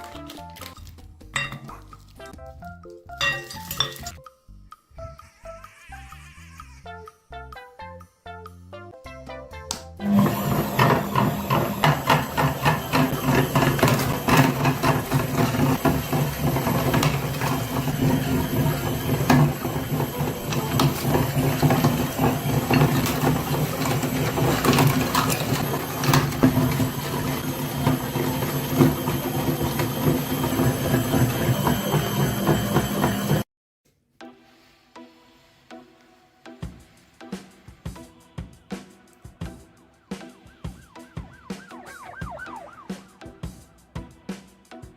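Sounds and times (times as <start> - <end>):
small motor humming: 10.0 - 33.5.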